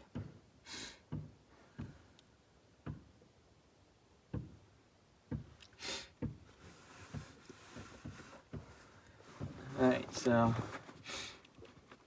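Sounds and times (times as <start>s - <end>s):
soft knocks and thumps: 0.0s - 0.5s, 1.1s - 2.1s, 2.8s - 3.3s, 4.3s - 11.1s
short breathy hiss: 0.6s - 1.0s, 5.8s - 6.2s, 11.0s - 11.4s.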